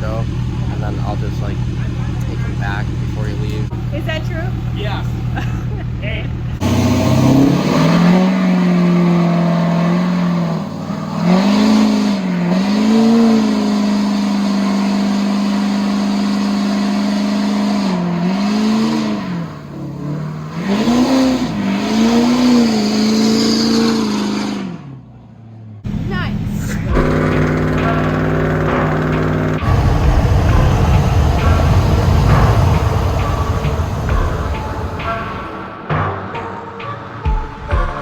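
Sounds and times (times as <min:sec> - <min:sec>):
vehicle engine revving: 0:00.0 - 0:36.9.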